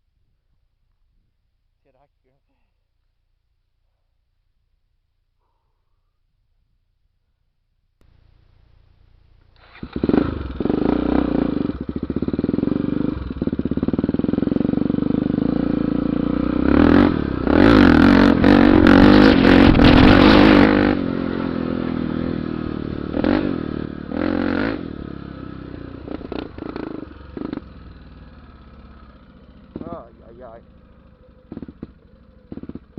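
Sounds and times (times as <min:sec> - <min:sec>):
dirt bike engine revving: 0:08.0 - 0:32.9.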